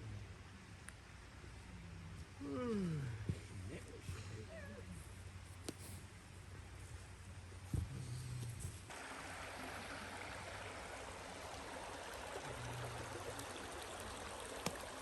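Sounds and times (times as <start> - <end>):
steady rushing hiss: 3.4 - 15.0.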